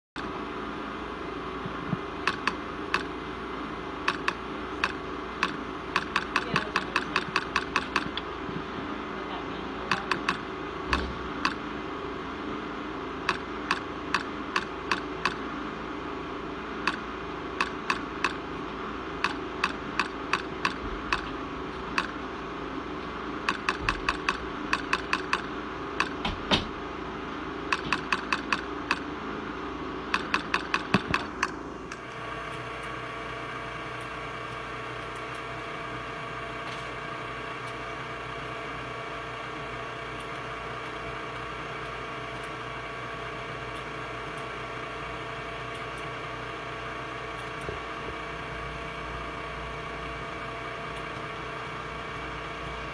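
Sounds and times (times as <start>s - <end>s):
machine hum: 0.2s - 52.9s
laser welder clicks: 2.2s - 3.1s, 4.0s - 8.3s, 9.9s - 11.7s, 13.2s - 15.4s, 16.8s - 18.4s, 19.2s - 22.2s, 23.4s - 26.7s, 27.7s - 29.1s, 30.1s - 33.0s.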